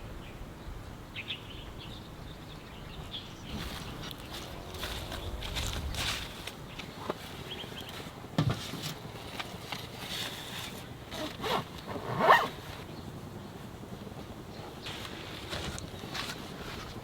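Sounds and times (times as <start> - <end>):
zipper pulled: 8.7 - 12.9.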